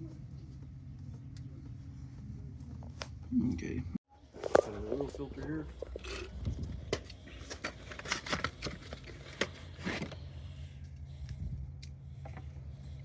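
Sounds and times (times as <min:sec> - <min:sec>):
cardboard box rustling: 0:07.0 - 0:10.3.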